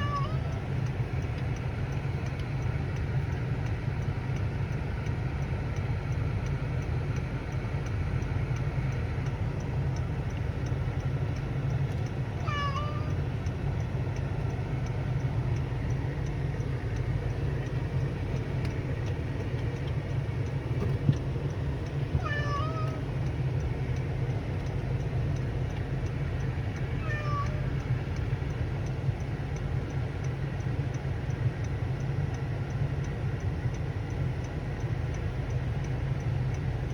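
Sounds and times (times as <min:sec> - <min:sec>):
cat meowing: 0:00.0 - 0:00.6, 0:12.4 - 0:13.2, 0:22.2 - 0:23.0, 0:27.0 - 0:27.9
steady low hum: 0:00.0 - 0:36.9.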